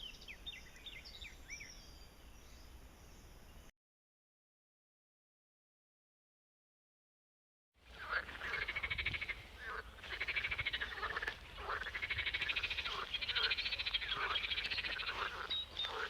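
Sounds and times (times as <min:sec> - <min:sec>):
frogs trilling in chorus: 0:07.9 - 0:16.0.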